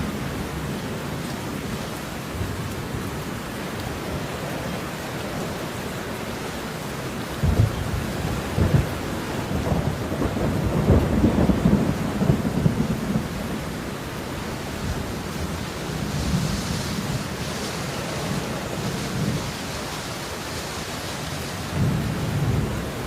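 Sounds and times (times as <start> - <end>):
steady rainfall: 0.0 - 23.0
thunder rumbling: 7.4 - 19.6, 21.6 - 23.0.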